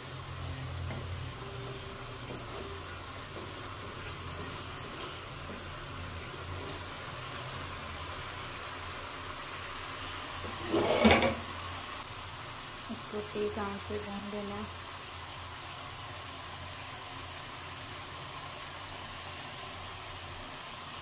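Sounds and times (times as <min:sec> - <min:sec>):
food sizzling in a pan: 0:00.0 - 0:21.0.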